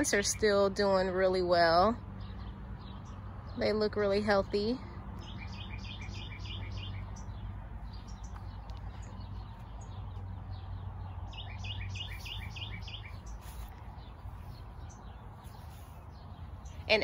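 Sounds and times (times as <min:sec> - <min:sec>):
low outdoor hum: 0:00.0 - 0:17.0
songbird chirping rapidly: 0:00.0 - 0:17.0
faint bird chirps: 0:04.8 - 0:17.0.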